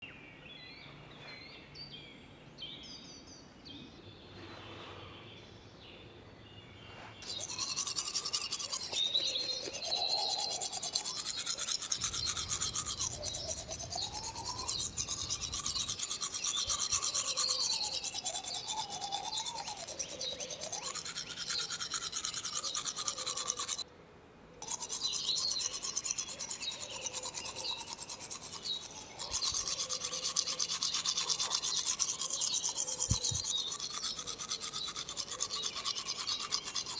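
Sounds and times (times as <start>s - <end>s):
toothbrush scrubbing teeth: 7.2s - 23.8s, 24.6s - 36.9s.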